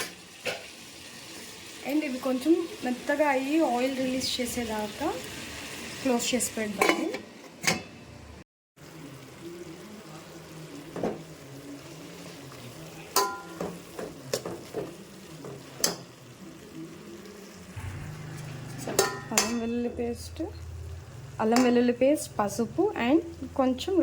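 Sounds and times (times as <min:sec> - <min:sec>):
vegetables sizzling in a pan: 0:00.0 - 0:07.3, 0:08.8 - 0:24.0
metal clinks against a pan: 0:13.2 - 0:13.6, 0:18.8 - 0:19.8.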